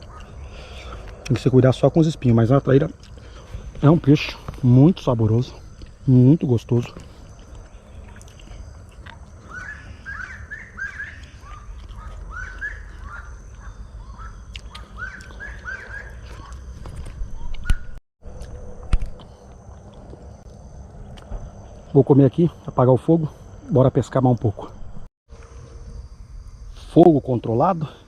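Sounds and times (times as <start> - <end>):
insects trilling: 0.0 - 28.0
bird chirping: 7.0 - 18.0.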